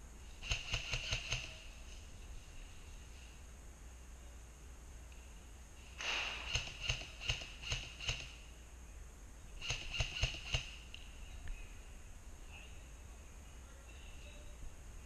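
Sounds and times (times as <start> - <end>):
airsoft gun shots: 6.0 - 8.4, 9.6 - 10.8.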